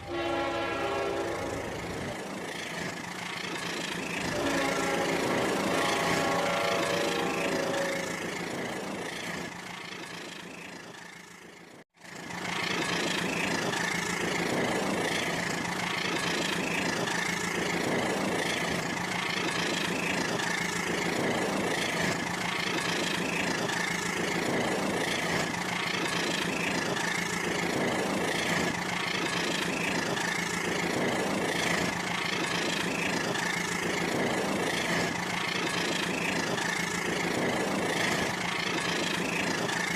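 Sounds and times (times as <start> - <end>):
toy train motor whine: 0.1 - 10.6.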